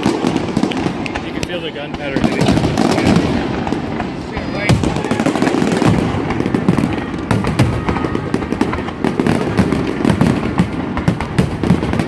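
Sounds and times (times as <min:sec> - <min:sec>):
fireworks bangs and crackling: 0:00.0 - 0:12.0
continuous rumble: 0:00.1 - 0:12.0.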